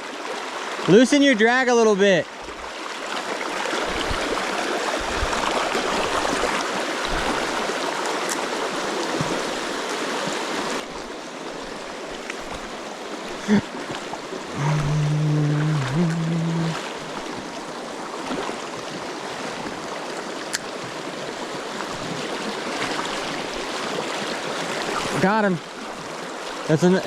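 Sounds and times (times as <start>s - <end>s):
river water rushing over rocks: 2.0s - 27.0s.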